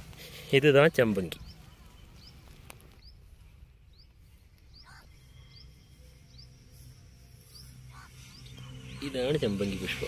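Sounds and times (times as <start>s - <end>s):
open field ambience: 0.0s - 10.0s
bird chirping faintly: 0.6s - 9.6s.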